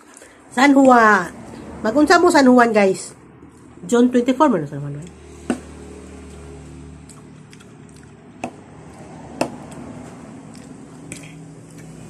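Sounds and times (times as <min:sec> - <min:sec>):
wet chewing and squishing: 0:05.0 - 0:12.0.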